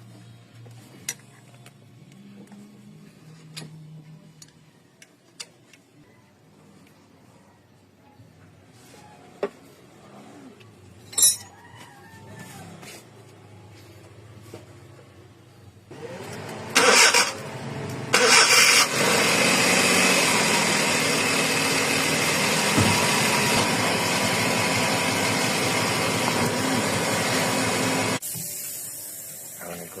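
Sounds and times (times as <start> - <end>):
small engine starting and running: 15.9 - 28.2.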